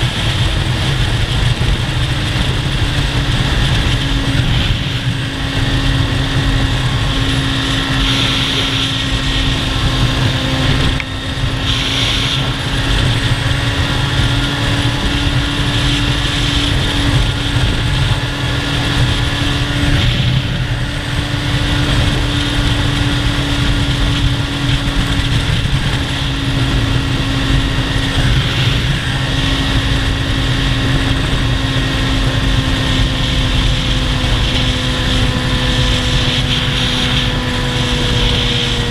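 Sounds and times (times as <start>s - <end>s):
motorcycle engine running: 0.0s - 38.9s
wind noise: 0.0s - 38.9s.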